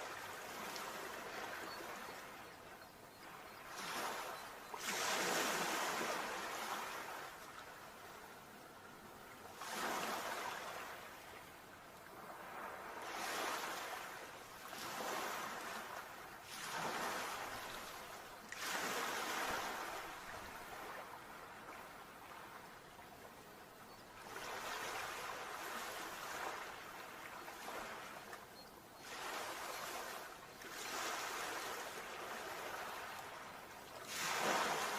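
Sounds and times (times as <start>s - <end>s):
sea waves breaking: 3.2s - 7.4s, 9.5s - 11.3s, 12.2s - 22.6s, 29.0s - 34.9s.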